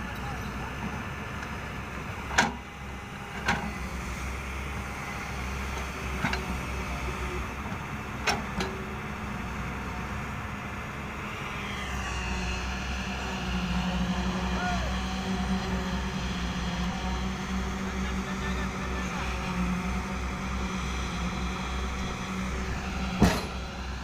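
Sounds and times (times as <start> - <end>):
excavator diesel engine running: 0.0 - 24.0
sharp metal clanks: 23.2 - 23.7.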